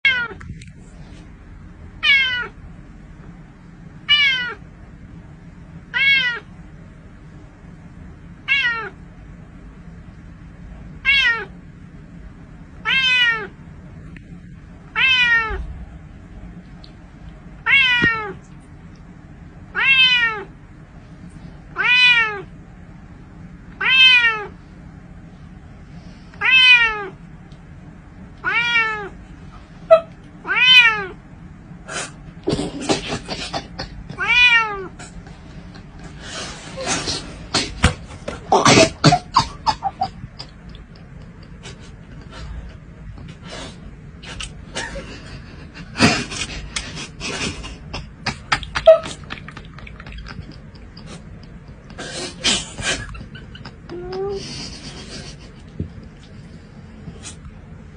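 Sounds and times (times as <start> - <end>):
cat meowing: 0.0 - 0.4, 2.0 - 2.6, 4.1 - 4.6, 5.9 - 6.5, 8.5 - 9.0, 11.0 - 11.5, 12.8 - 13.6, 15.0 - 15.7, 17.6 - 18.4, 19.8 - 20.5, 21.8 - 22.5, 23.8 - 24.6, 26.4 - 27.2, 28.4 - 29.2, 29.9 - 31.2, 34.2 - 34.9.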